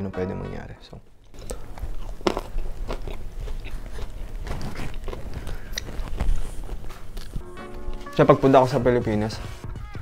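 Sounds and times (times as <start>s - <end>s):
wet chewing: 1.2s - 8.0s.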